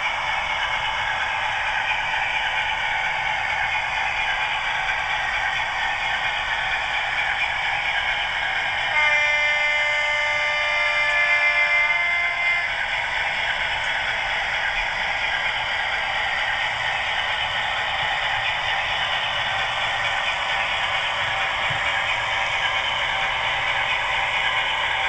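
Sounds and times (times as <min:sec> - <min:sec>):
locomotive horn: 0:08.9 - 0:12.7.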